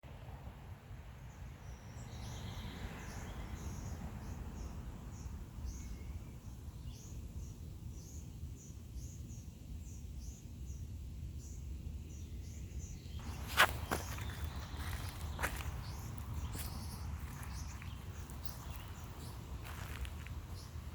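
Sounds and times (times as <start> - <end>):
steady low rumble: 13.2 - 20.9.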